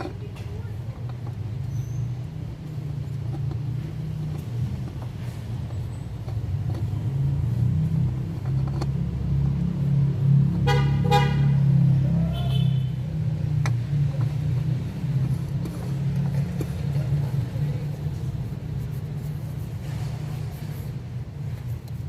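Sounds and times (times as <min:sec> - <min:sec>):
vehicle engine rumble: 0:00.0 - 0:22.0
car horn toots: 0:10.6 - 0:11.6, 0:12.3 - 0:13.0.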